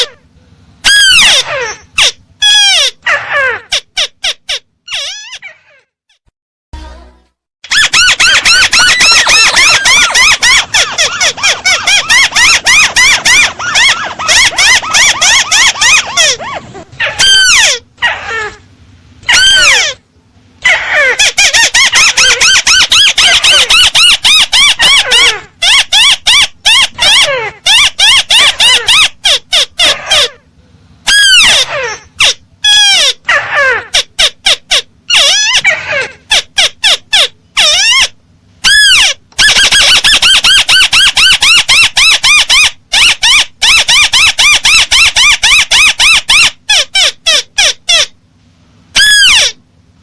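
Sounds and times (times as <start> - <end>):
crake calling: 7.6 - 18.6.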